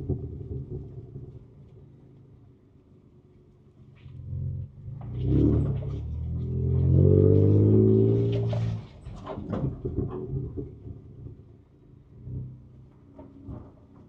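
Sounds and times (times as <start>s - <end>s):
truck knocks and rattles: 0.0s - 2.0s, 5.0s - 11.8s, 12.8s - 14.0s
truck engine revving: 5.2s - 9.1s.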